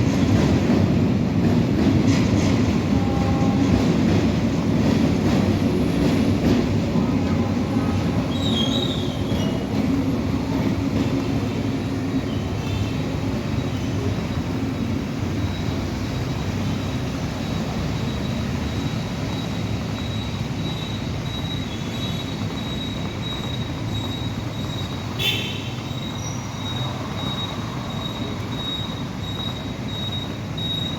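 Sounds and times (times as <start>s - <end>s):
passenger train rumbling on track: 0.0s - 30.9s
high wheel squeal: 6.9s - 10.6s, 12.0s - 30.9s.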